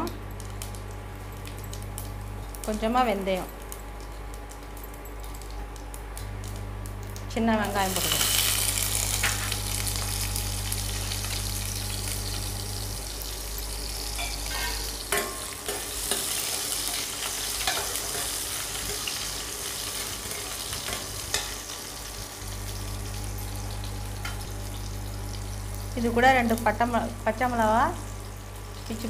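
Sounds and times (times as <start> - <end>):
cooktop hum: 0.0 - 29.0
shallots sizzling in oil: 6.3 - 29.0.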